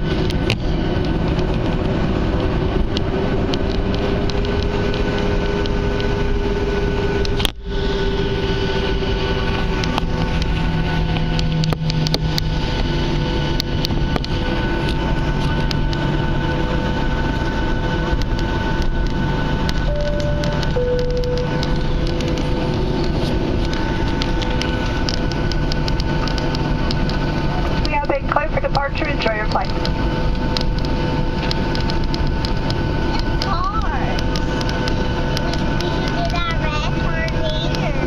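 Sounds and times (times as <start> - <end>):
jet engines heard from cabin: 0.0 - 38.0.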